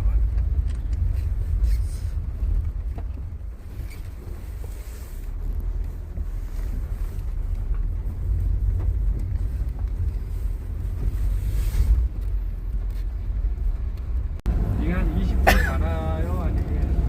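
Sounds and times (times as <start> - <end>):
vehicle rumble from inside: 0.0 - 17.0.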